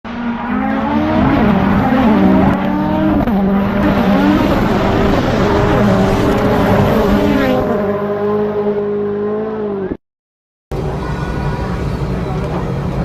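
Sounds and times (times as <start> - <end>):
vehicle engines revving: 0.1 - 10.0.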